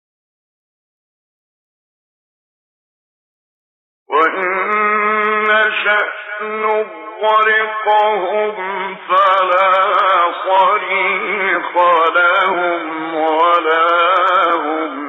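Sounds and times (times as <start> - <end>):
man reciting melodically: 4.1 - 15.0.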